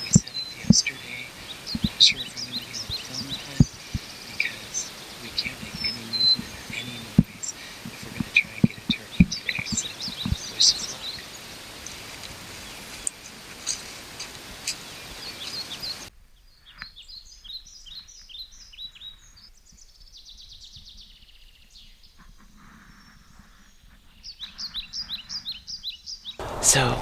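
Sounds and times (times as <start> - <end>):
steady hiss: 0.0 - 16.1, 26.4 - 27.0
songbirds chirping and singing: 0.0 - 27.0.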